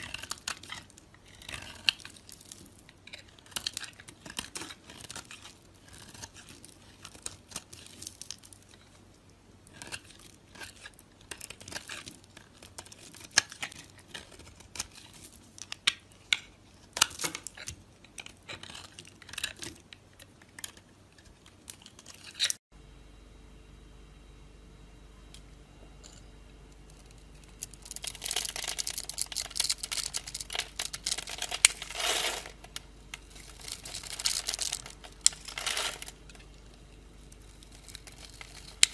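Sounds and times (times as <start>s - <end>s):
knife carving soap: 0.0s - 22.6s, 26.0s - 38.9s
low hum: 22.7s - 38.9s.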